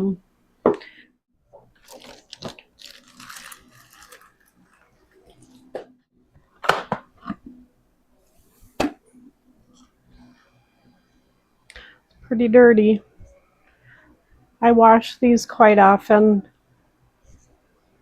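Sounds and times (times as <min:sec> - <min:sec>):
foam filter rustling and crunching: 0:01.7 - 0:05.7.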